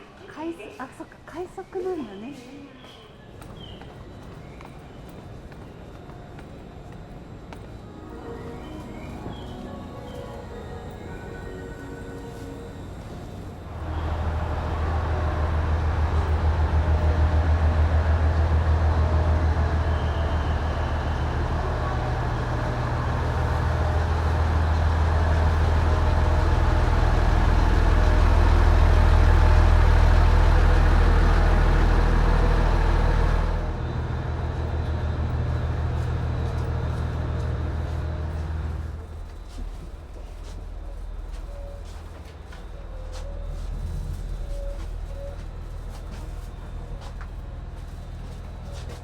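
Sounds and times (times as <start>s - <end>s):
large vehicle engine drone: 12.3s - 40.2s.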